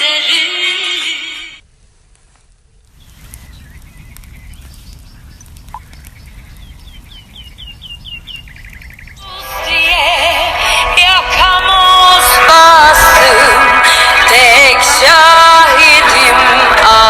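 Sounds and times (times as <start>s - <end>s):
songbird calling: 2.7s - 9.3s
steady low rumble: 2.8s - 9.2s.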